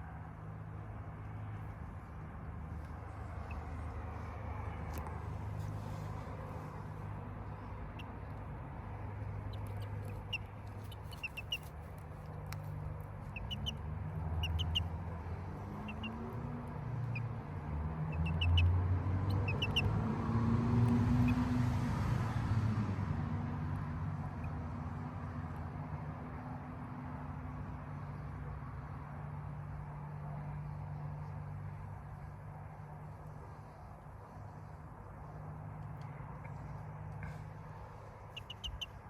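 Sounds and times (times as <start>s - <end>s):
chickens chirping: 9.5s - 11.7s, 13.3s - 13.8s, 14.4s - 14.9s, 38.3s - 39.0s.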